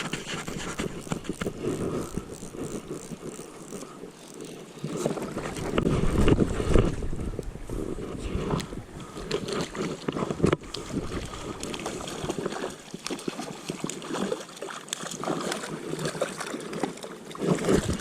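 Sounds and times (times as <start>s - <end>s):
water sloshing and splashing: 0.0s - 18.0s.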